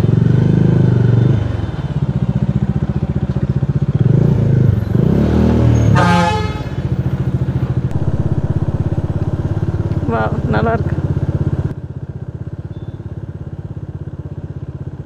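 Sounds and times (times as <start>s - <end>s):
motorcycle engine revving: 0.0s - 12.1s
vehicle horn: 5.8s - 7.1s, 7.9s - 11.7s.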